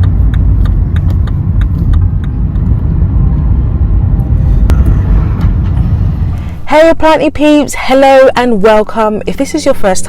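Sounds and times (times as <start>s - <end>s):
loud low rumble: 0.0s - 7.7s.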